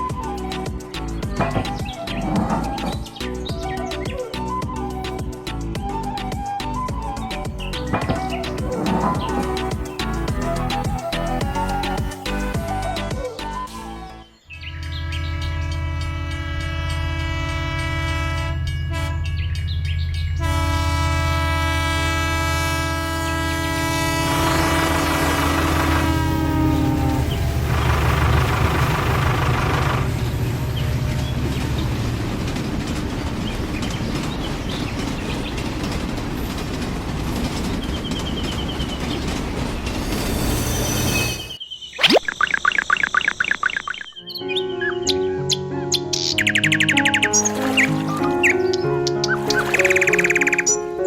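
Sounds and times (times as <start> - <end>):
model train rumbling: 7.0 - 12.8, 20.4 - 41.5
train horn chord: 14.6 - 19.6, 20.3 - 28.1.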